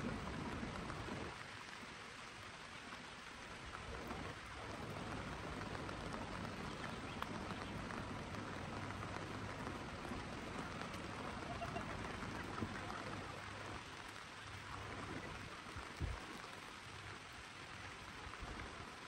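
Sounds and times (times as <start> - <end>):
rain falling: 0.0 - 19.0
small drop ticks: 6.8 - 7.6.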